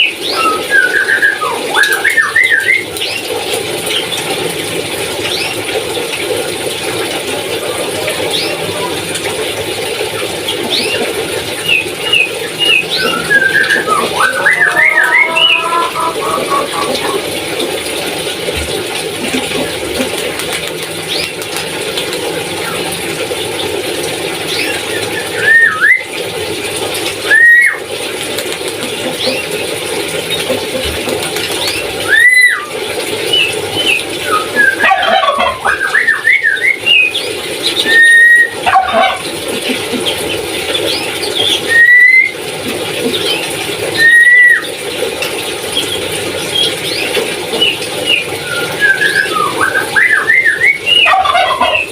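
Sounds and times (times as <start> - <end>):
parrot whistled calls: 0.0 - 2.9, 10.7 - 17.2, 24.7 - 26.1, 27.2 - 27.8, 32.0 - 39.3, 41.4 - 42.4, 43.9 - 44.7, 47.6 - 51.9
parrot chattering: 50.9 - 51.9.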